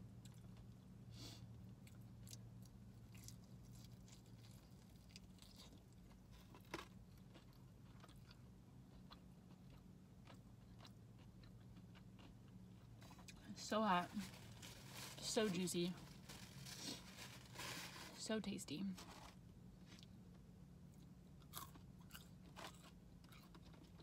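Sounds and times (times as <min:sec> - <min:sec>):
steady low hum: 0:00.0 - 0:24.0
chewing crunches: 0:01.7 - 0:13.5, 0:20.9 - 0:24.0.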